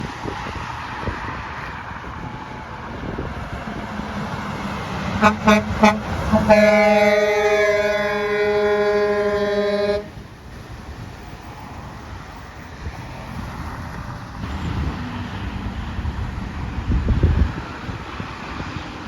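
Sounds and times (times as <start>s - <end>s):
truck passing: 0.0s - 19.0s
truck horn blasts: 5.0s - 10.2s.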